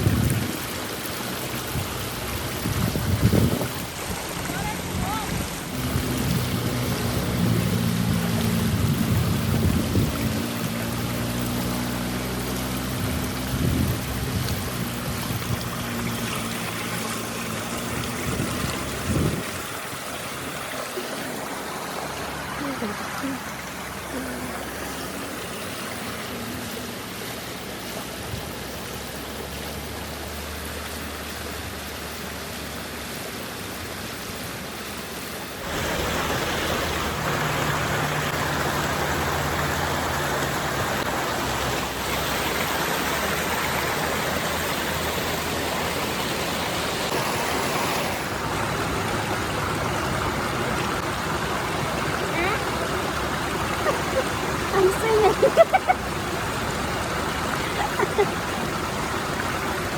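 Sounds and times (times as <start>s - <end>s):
river water rushing over rocks: 0.0s - 59.9s.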